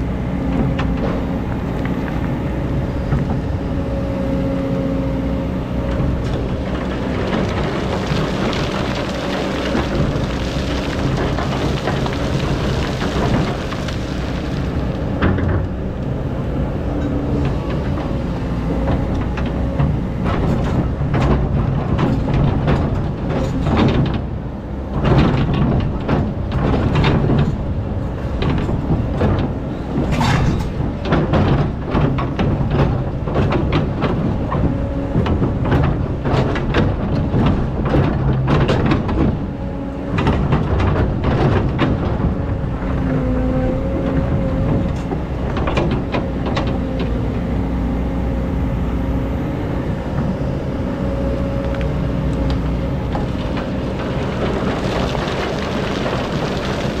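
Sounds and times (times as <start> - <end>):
diesel engine under load: 0.0 - 57.0
bucket scraping sand and gravel: 6.4 - 15.1, 53.3 - 57.0.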